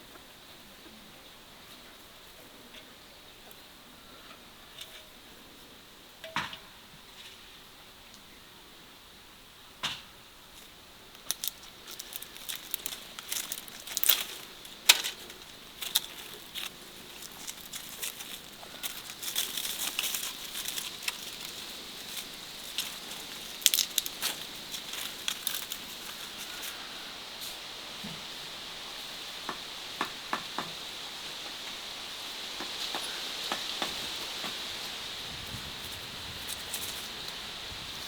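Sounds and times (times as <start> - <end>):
crinkling and crackling: 10.6 - 27.5.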